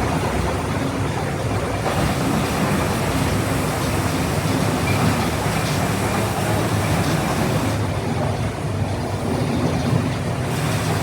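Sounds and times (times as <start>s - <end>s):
machinery rumble and hiss: 0.0s - 8.1s, 8.8s - 11.0s.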